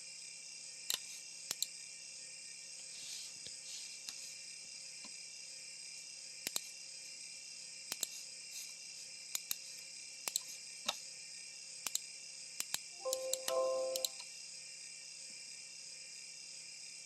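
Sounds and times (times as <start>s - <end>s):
computer mouse clicks: 0.9s - 1.7s, 6.5s - 6.7s, 7.9s - 8.1s, 9.3s - 9.6s, 10.2s - 10.5s, 11.8s - 12.0s, 12.6s - 14.2s
high-pitched hiss: 13.0s - 14.2s.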